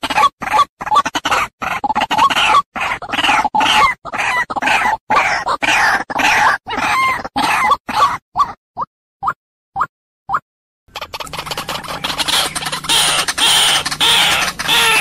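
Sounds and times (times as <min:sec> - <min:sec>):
waterhen calling harsh notes: 0:10.9 - 0:15.0.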